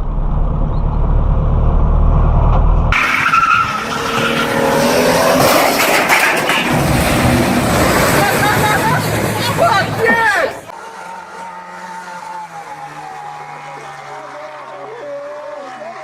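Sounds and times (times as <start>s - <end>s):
vehicle rumble: 0.0s - 16.0s
tyres squealing and skidding: 2.9s - 16.0s.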